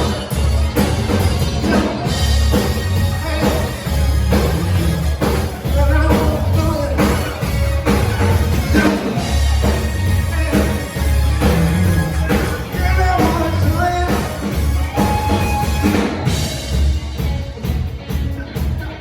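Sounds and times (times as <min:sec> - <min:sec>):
drum kit beat: 0:00.0 - 0:19.0
heavy bass: 0:00.0 - 0:19.0
rock band playing: 0:00.0 - 0:19.0
person singing: 0:04.8 - 0:16.3.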